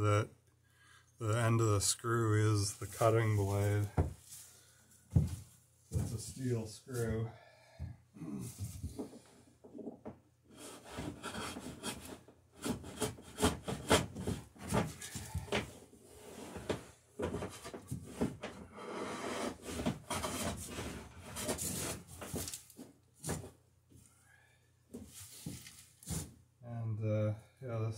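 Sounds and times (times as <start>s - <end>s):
scraping tool on wooden rail: 10.5s - 14.4s, 17.4s - 22.5s.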